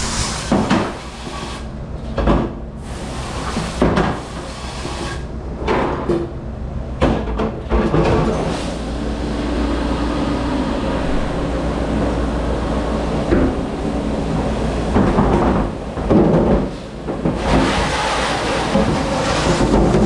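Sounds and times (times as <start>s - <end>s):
water spray rushing: 0.0s - 1.7s
dishwasher machine hum: 0.0s - 5.2s, 7.5s - 20.0s
dishes and racks clattering: 14.9s - 20.0s.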